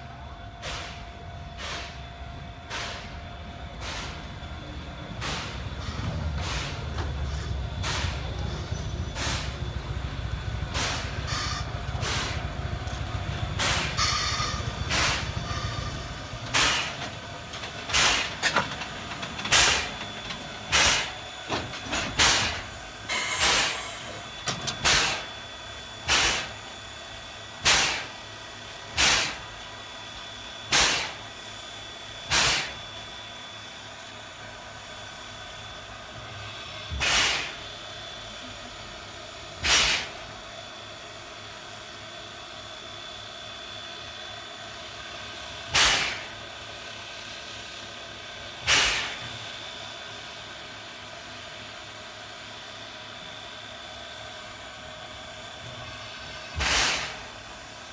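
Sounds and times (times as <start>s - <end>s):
steam locomotive rumbling: 0.0s - 57.9s
steam puffs: 5.2s - 9.7s, 10.7s - 18.7s, 19.4s - 21.2s, 22.2s - 25.3s, 26.0s - 26.7s, 27.6s - 28.3s, 28.9s - 29.5s, 32.3s - 32.8s, 36.4s - 37.8s, 39.6s - 40.4s, 45.6s - 46.4s, 48.6s - 49.5s, 56.6s - 57.4s.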